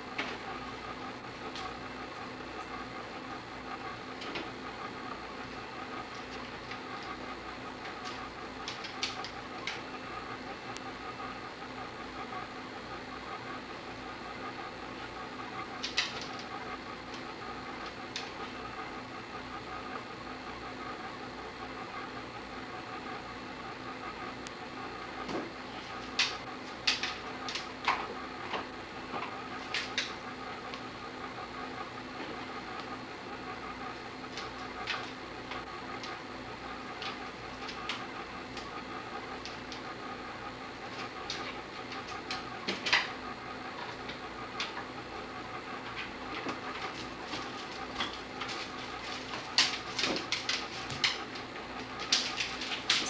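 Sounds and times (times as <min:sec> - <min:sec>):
electrical hum: 0:00.0 - 0:53.0
objects clicking and clattering: 0:52.0 - 0:53.0.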